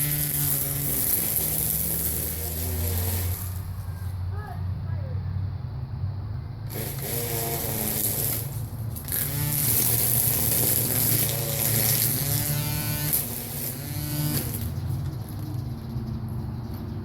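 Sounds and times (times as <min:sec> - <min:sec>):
string trimmer whining: 0:00.0 - 0:04.2, 0:06.7 - 0:15.0.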